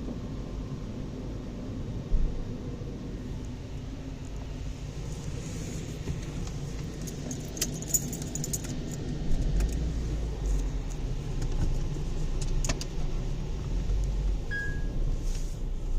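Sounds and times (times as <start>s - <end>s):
car wash low rumble: 0.0s - 15.9s
short beep: 14.5s - 15.0s.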